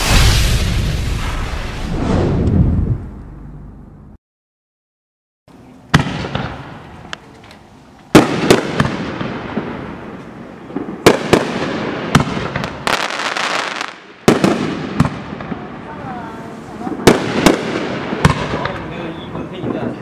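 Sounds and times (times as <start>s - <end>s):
firework fizzing crackle: 0.0s - 2.3s
firework launch thump: 0.0s - 3.1s
firework shells booming: 8.1s - 15.8s, 17.0s - 18.9s.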